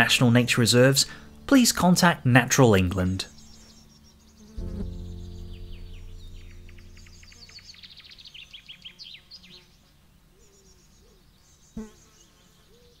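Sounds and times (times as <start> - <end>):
background music: 0.0 - 8.4
birdsong chirps and trills: 2.6 - 13.0
sharp knock: 4.6 - 8.0.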